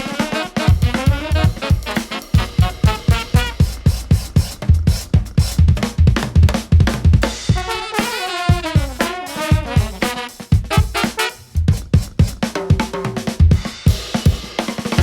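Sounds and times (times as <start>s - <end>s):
live jazz band playing: 0.0s - 4.4s, 7.5s - 11.6s
drum kit beat: 0.0s - 15.0s.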